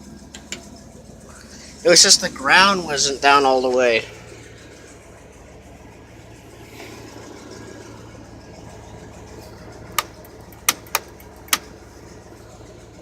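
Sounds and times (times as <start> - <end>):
pickup engine idling: 0.0 - 13.0
sharp clicks: 9.9 - 11.7.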